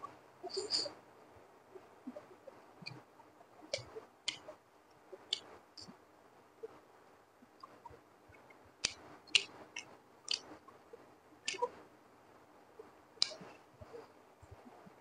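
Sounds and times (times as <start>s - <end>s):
wet mouth clicks and smacks: 8.8s - 10.5s, 11.5s - 11.7s.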